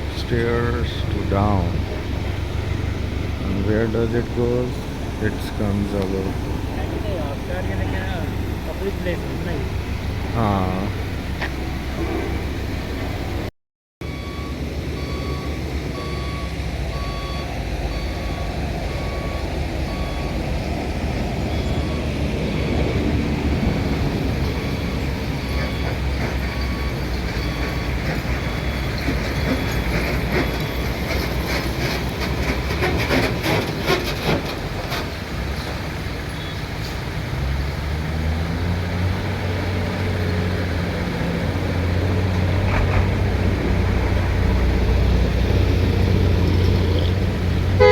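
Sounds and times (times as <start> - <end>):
vehicle engine running: 0.0 - 13.5, 17.8 - 47.9
reversing alarm beeping: 14.0 - 20.6, 21.4 - 31.6.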